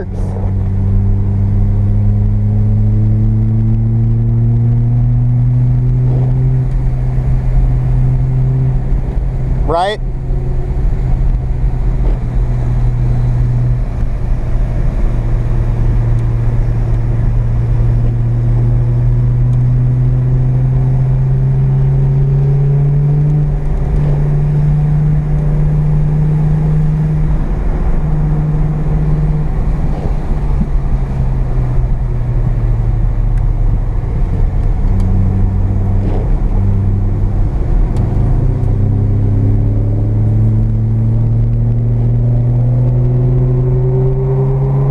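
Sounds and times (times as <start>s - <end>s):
car engine revving: 0.0s - 44.9s.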